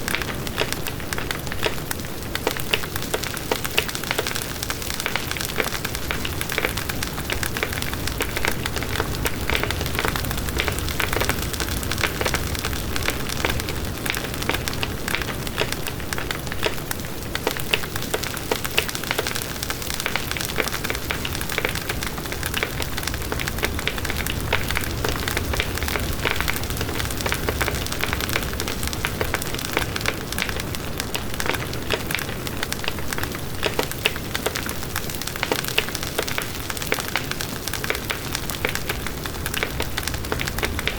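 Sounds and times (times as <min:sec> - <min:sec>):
wood crackling and popping: 0:00.0 - 0:40.9
low rush of flame: 0:38.6 - 0:40.9.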